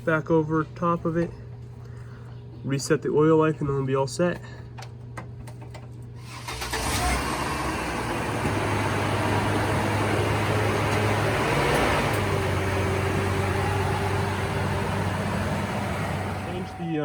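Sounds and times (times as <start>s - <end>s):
vehicle engine humming: 6.4s - 17.0s.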